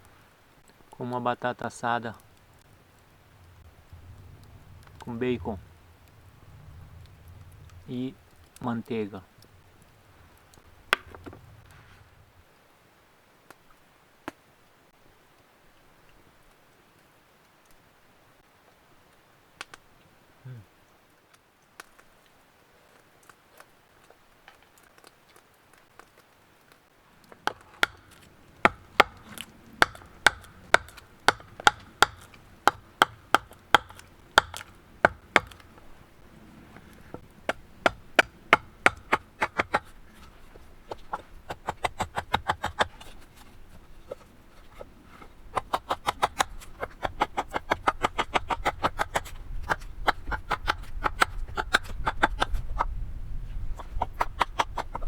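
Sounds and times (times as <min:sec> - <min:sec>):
low rumble: 0:02.2 - 0:12.4
knife chopping on wood: 0:27.5 - 0:35.8, 0:37.2 - 0:39.9, 0:40.9 - 0:43.4, 0:45.6 - 0:52.6.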